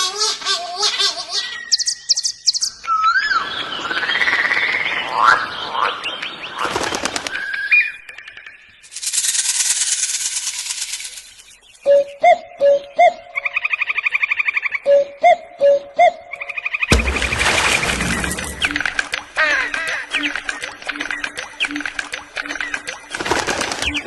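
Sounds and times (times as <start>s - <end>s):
gliding bird calls and rattle: 3.9s - 11.9s, 16.5s - 24.0s.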